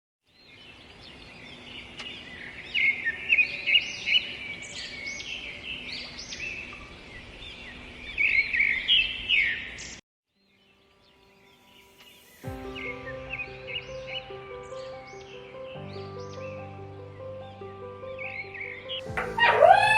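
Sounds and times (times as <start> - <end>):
small birds chirping: 0.3 - 19.9.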